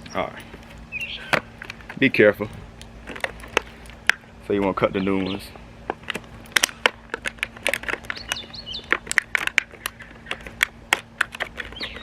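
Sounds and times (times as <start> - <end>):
clicks and snaps: 5.9 - 12.0.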